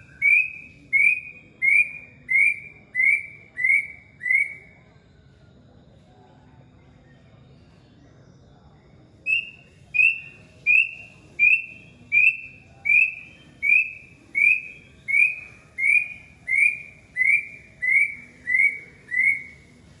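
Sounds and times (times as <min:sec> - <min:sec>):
bird whistling clear notes: 0:00.0 - 0:04.7, 0:09.3 - 0:19.7.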